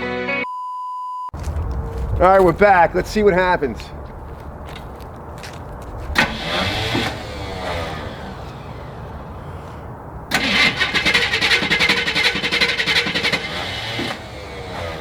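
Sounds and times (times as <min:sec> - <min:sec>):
starter motor cranking engine: 0:06.1 - 0:08.0, 0:10.3 - 0:15.0.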